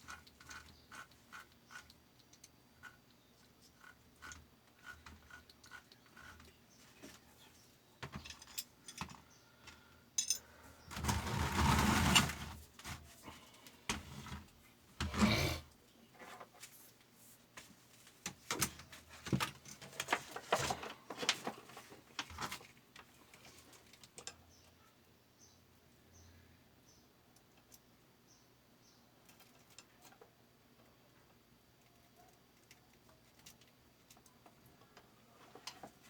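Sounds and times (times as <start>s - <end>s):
metal parts and tools clinking: 8.0s - 9.2s, 10.2s - 10.5s.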